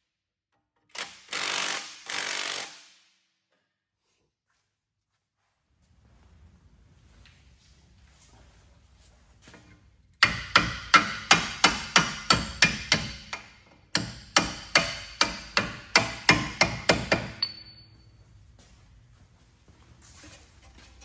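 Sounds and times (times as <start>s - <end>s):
hammer striking metal: 10.2s - 17.9s
metallic ring: 17.3s - 18.3s.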